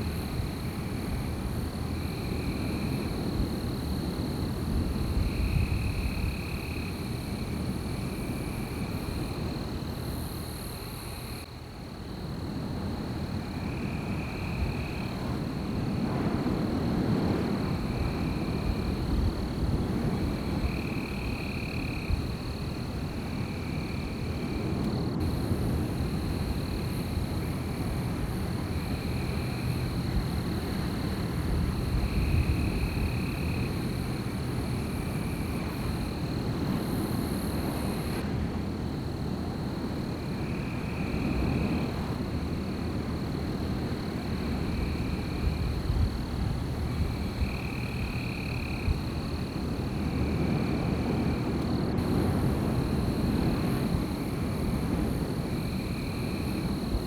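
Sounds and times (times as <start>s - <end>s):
wind in forest: 0.0s - 57.0s.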